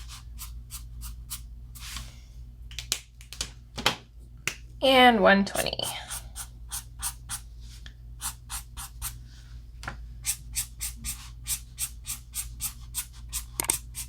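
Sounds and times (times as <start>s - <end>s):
marker scratching on paper: 5.7s - 7.4s, 8.2s - 9.2s, 10.2s - 14.0s.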